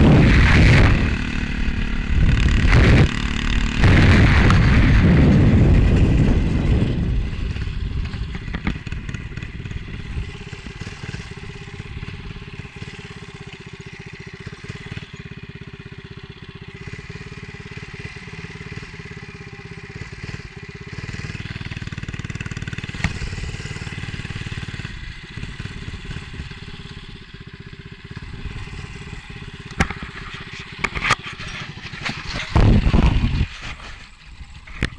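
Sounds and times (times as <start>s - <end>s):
wind buffeting microphone: 0.0s - 10.8s, 31.7s - 34.9s
minibike engine running: 0.0s - 34.9s.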